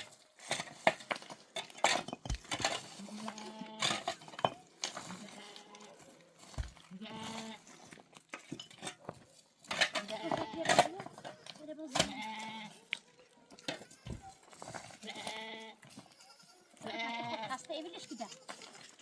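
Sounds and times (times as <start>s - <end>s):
livestock bleating: 3.0s - 4.0s, 5.1s - 6.0s, 6.9s - 7.7s, 10.0s - 11.0s, 11.6s - 12.8s, 15.0s - 19.0s.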